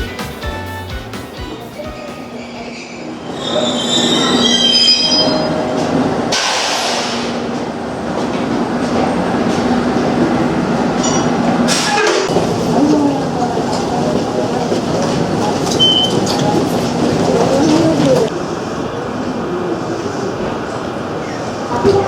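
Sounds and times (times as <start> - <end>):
electric train humming: 0.0 - 22.0
train wheel squeal: 2.0 - 7.3
short hiss: 6.4 - 7.5.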